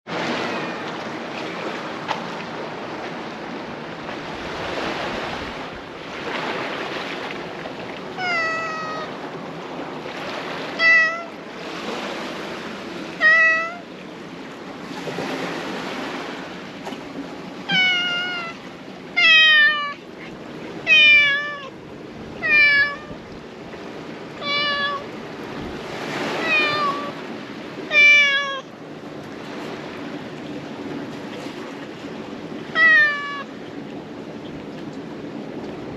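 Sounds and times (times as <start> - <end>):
sea surf: 0.0 - 35.9
cat meowing: 0.1 - 1.0, 8.2 - 9.2, 10.8 - 11.4, 13.2 - 13.9, 17.7 - 18.6, 19.2 - 20.0, 20.8 - 21.8, 22.4 - 23.2, 24.4 - 25.1, 26.3 - 27.2, 27.9 - 28.7, 32.7 - 33.5.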